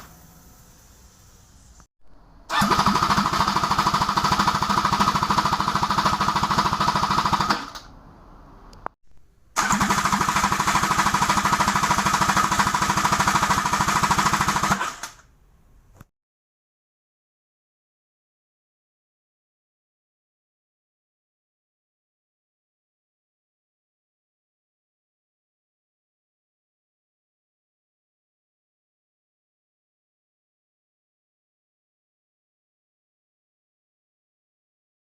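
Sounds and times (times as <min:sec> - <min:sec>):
starter motor whirring: 0:02.5 - 0:05.5, 0:09.6 - 0:11.4.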